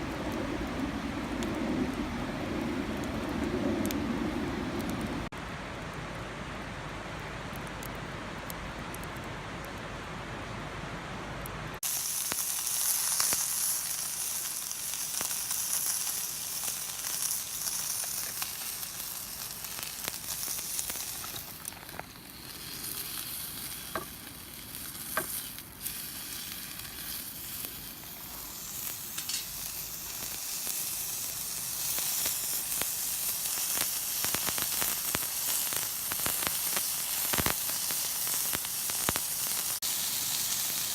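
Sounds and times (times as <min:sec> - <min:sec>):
low rushing noise: 0:00.0 - 0:11.8
food frying and sizzling: 0:11.8 - 0:40.9.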